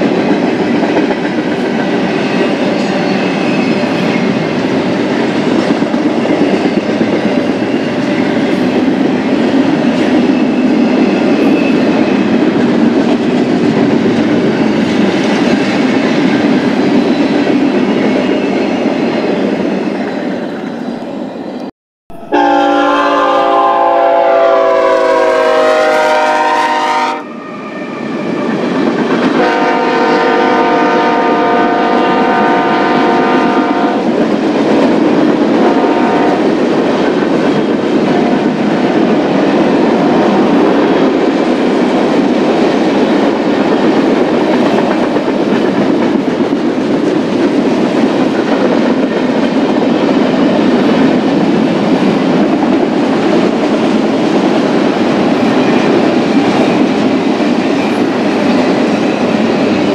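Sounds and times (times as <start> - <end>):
clickety-clack over rail joints: 0.0 - 19.4, 34.0 - 59.9
train wheels rumbling on rails: 0.0 - 59.9
locomotive horn blasts: 22.1 - 28.0, 29.4 - 34.1, 35.6 - 36.4.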